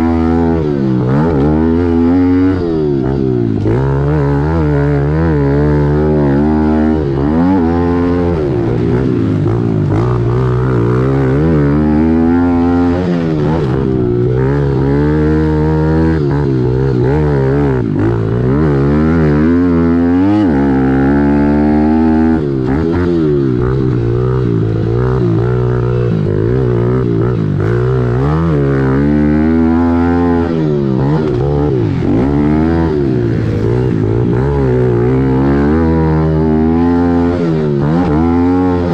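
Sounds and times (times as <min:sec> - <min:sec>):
small motorbike engine revving: 0:00.0 - 0:38.9.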